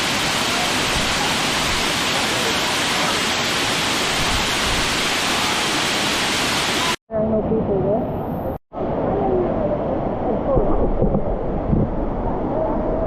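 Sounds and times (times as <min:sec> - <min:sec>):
waterfall rushing: 0:00.0 - 0:07.0.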